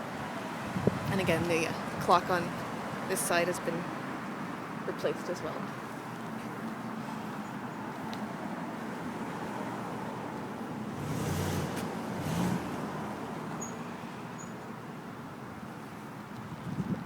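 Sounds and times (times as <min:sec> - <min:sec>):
street traffic: 0:00.0 - 0:17.0
car passing close by: 0:09.0 - 0:14.3.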